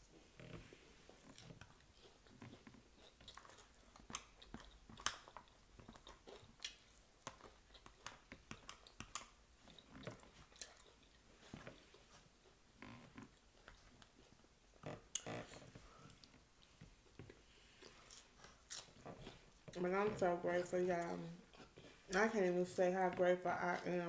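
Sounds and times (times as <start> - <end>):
close chewing and crunching: 0.4 - 24.0.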